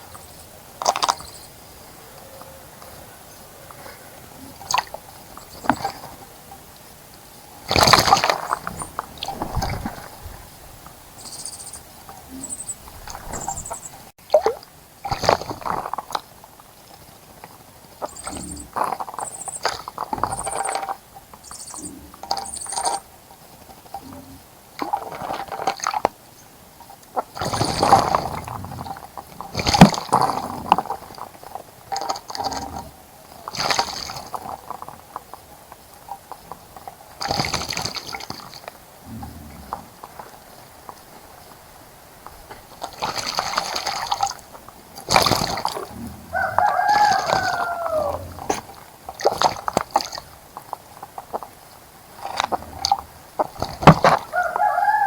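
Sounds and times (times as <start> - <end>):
birds splashing in water: 0.0 - 23.2, 24.6 - 26.3, 27.0 - 55.0
falling bird call: 45.4 - 48.7.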